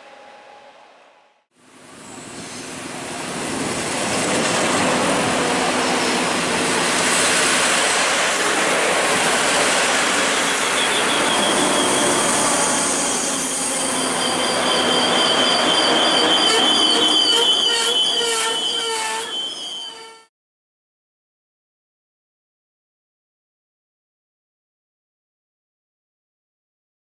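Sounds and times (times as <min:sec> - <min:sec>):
train rolling noise: 0:01.8 - 0:20.2
high-pitched brake squeal: 0:09.5 - 0:20.3.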